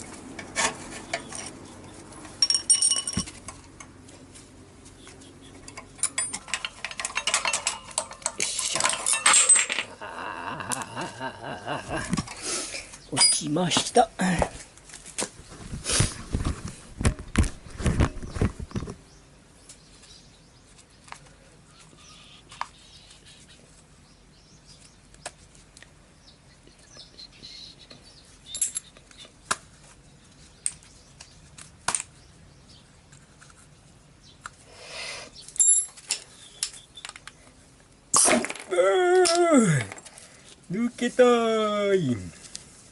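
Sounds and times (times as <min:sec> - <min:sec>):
metal tools clattering: 0:02.2 - 0:03.6, 0:05.6 - 0:10.0, 0:28.5 - 0:29.0, 0:35.6 - 0:36.2.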